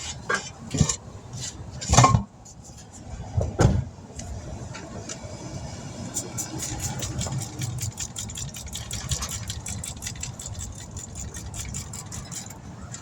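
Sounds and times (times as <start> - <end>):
motor-driven machine ticking: 6.6 - 12.6.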